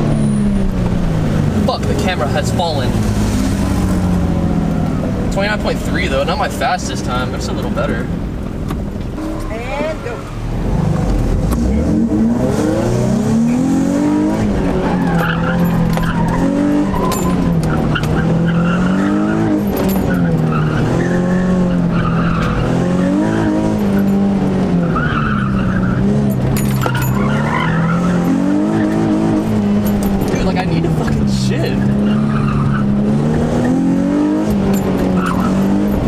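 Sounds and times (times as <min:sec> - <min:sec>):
car engine revving: 0:00.0 - 0:36.0
tyres squealing: 0:14.1 - 0:36.0.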